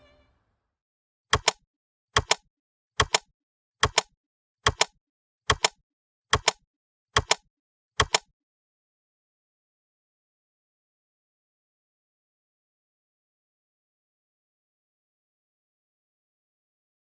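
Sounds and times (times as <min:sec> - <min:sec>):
sharp double clicks: 0:01.3 - 0:01.6, 0:02.2 - 0:06.6, 0:07.2 - 0:08.3.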